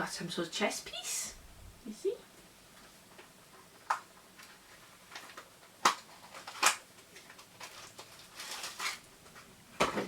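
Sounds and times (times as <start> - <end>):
faint packaging rustling: 4.3 - 9.6.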